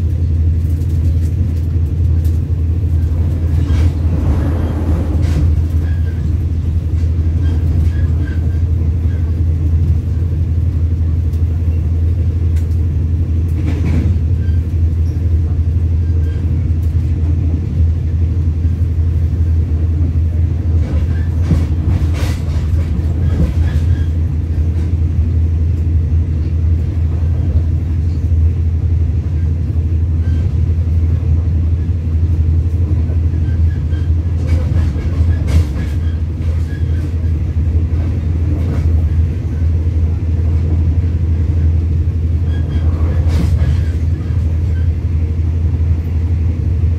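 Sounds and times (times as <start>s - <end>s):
train rumbling on rails: 0.0s - 46.9s
rattles and clacks: 0.6s - 8.6s, 13.5s - 14.3s, 20.8s - 25.0s, 32.9s - 39.2s, 42.5s - 44.5s.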